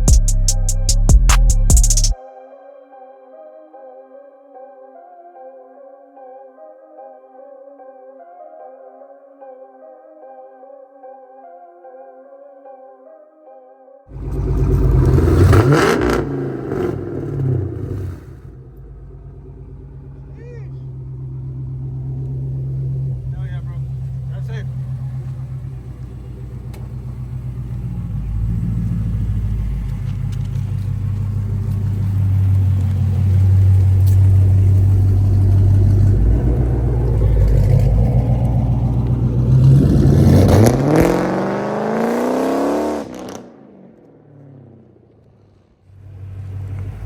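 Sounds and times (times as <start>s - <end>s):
car engine revving: 14.1s - 47.0s.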